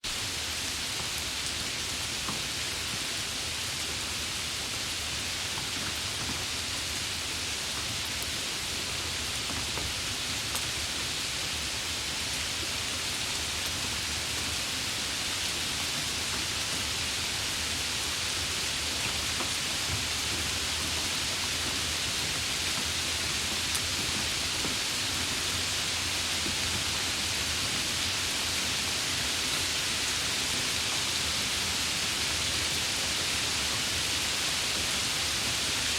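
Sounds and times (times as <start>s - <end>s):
steady rain falling: 0.0s - 35.9s
rain drop ticks: 19.0s - 25.8s.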